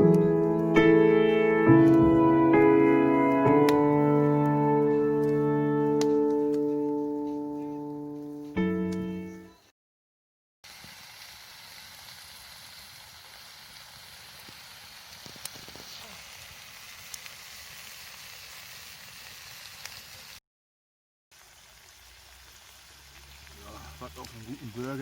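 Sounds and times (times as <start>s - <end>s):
meat sizzling: 10.6s - 20.4s, 21.3s - 25.0s.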